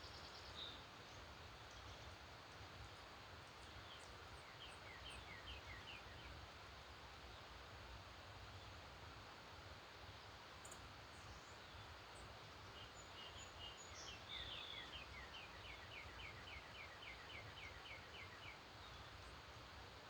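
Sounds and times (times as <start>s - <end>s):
faint outdoor hiss: 0.0s - 20.0s
songbird singing: 12.8s - 19.3s.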